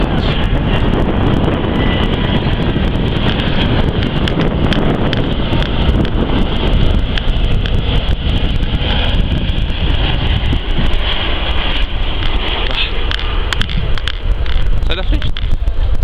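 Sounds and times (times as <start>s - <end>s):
jet engines rumbling: 0.0s - 16.0s
wind buffeting microphone: 0.0s - 16.0s.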